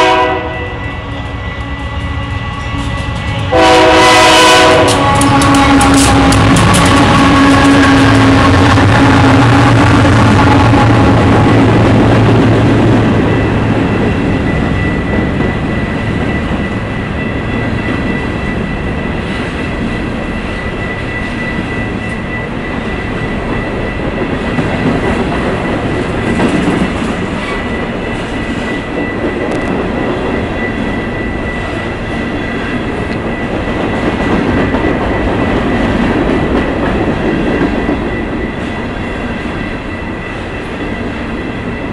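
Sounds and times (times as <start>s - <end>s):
diesel locomotive passing: 0.0s - 41.9s
rumble of wheels on rail: 0.0s - 41.9s
high ringing from wheels: 11.3s - 41.9s.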